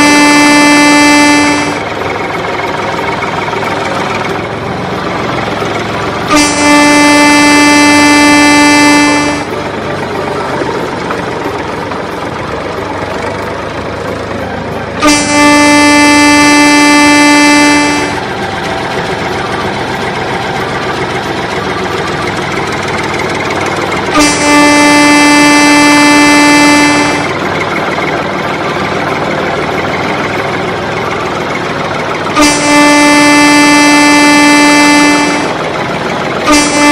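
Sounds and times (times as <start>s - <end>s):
vehicle horn blasts: 0.0s - 2.0s, 6.2s - 9.8s, 15.0s - 18.4s, 23.8s - 27.5s, 32.2s - 35.8s, 36.4s - 36.9s.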